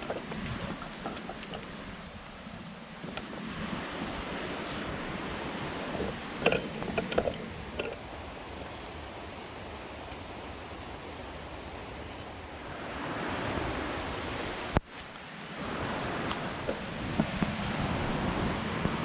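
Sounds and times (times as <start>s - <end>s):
stream rushing: 0.0s - 19.0s
sharp crackles and knocks: 6.0s - 12.7s.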